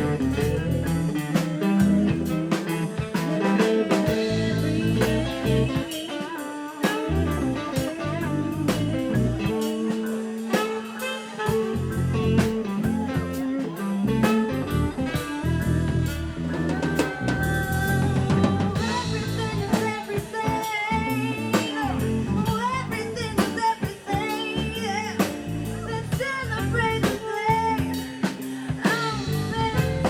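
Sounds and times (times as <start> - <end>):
low bass notes: 0.0 - 2.5, 4.1 - 5.9, 7.1 - 9.6, 11.6 - 13.3, 14.0 - 19.9, 21.0 - 23.5, 24.6 - 27.0, 29.1 - 30.0
drum kit beat: 0.0 - 30.0
guitar lines: 0.0 - 30.0.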